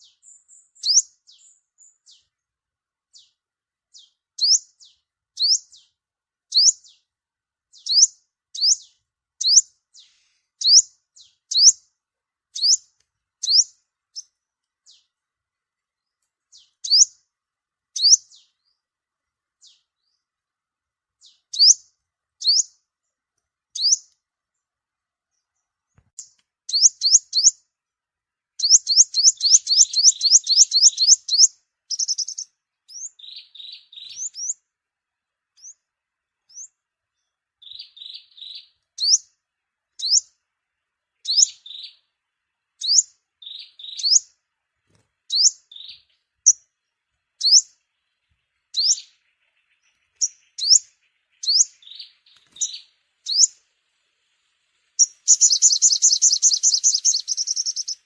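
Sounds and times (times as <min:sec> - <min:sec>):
sunbird chirping: 0:00.0 - 0:27.9, 0:28.5 - 0:58.0
buzzy bird notes: 0:55.0 - 0:58.0.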